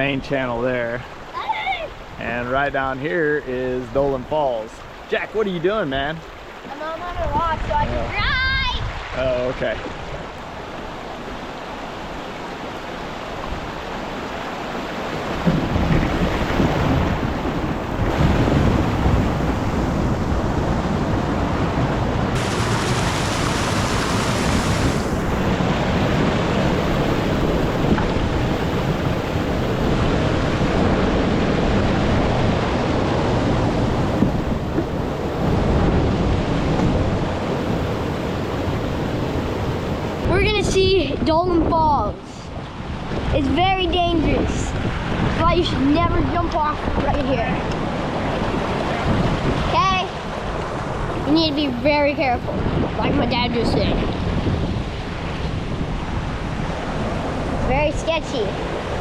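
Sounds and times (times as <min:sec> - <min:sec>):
river rapids rushing: 0:01.0 - 0:02.9, 0:03.5 - 0:40.9, 0:55.0 - 0:59.0
wind buffeting microphone: 0:05.7 - 0:59.0.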